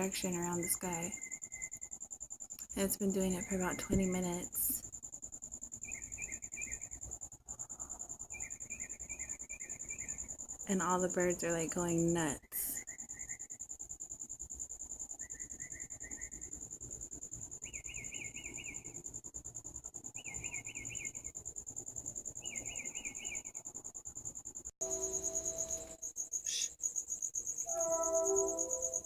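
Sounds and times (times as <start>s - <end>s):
crickets chirping: 0.0s - 29.0s
low humming tones: 24.8s - 26.0s
buzzy trill: 24.8s - 26.7s, 27.6s - 29.0s.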